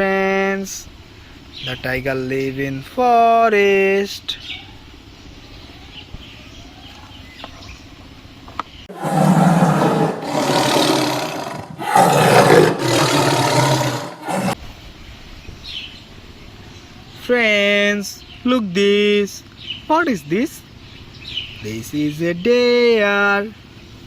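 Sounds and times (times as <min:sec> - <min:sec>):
tiger roaring: 0:08.9 - 0:14.6.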